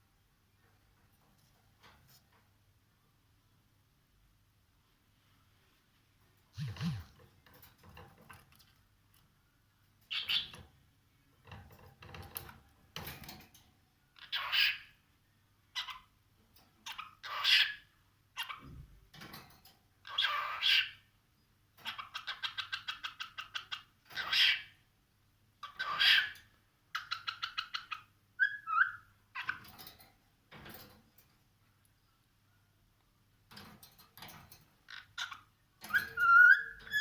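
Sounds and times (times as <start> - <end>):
cockatiel calling and chirping: 14.2 - 14.9, 25.6 - 26.4, 27.0 - 29.6, 35.2 - 37.0.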